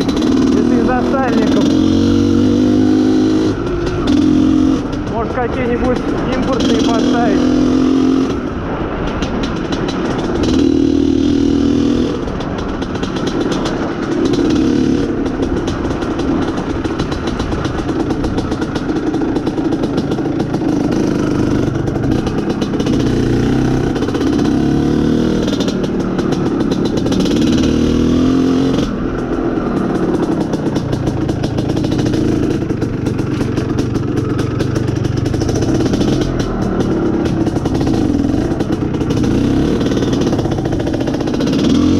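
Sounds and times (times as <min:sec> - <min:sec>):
fast clatter: 0:00.0 - 0:02.9, 0:03.5 - 0:07.6, 0:08.6 - 0:28.1, 0:28.8 - 0:41.9
two-stroke motorcycle engine revving: 0:00.0 - 0:41.9.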